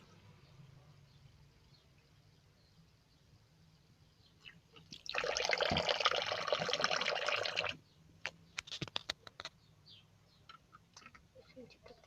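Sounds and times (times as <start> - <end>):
tap water running into container: 4.8 - 7.8.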